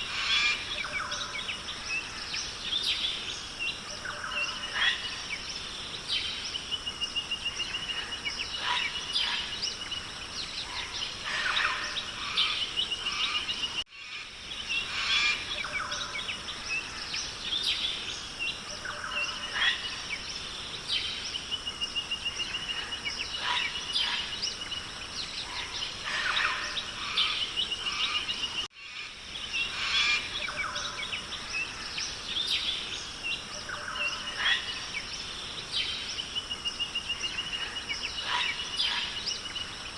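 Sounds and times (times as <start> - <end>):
birds calling and chirping: 0.0 - 39.9.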